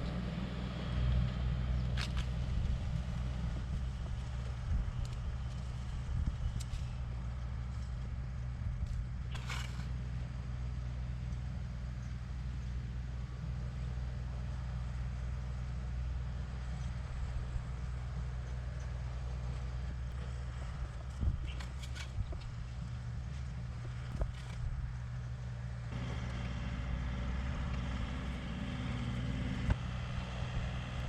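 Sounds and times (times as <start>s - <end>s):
motor humming: 19.9s - 31.0s.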